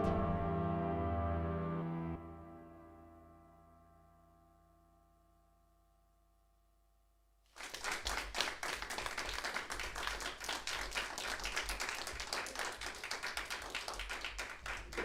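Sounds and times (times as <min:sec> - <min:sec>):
electronic music sustained notes: 0:00.0 - 0:03.5
audience applause: 0:07.6 - 0:15.0.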